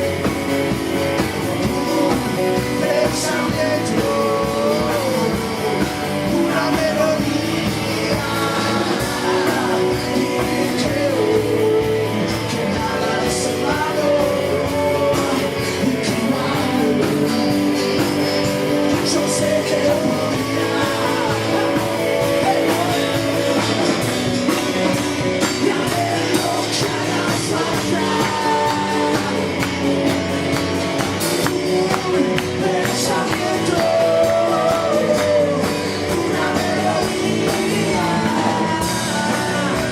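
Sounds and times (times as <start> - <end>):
live band playing: 0.0 - 39.9
person singing: 0.0 - 39.9.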